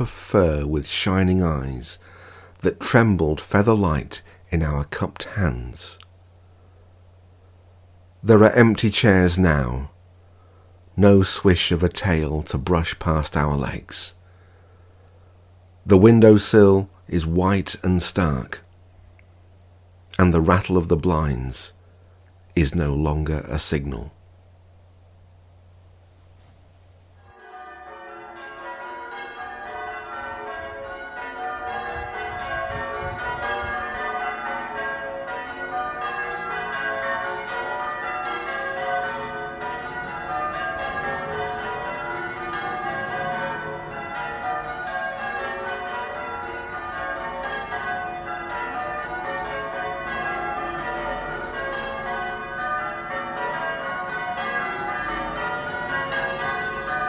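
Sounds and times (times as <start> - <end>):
church bells ringing: 0.0 - 2.0, 2.6 - 5.9, 27.2 - 57.0.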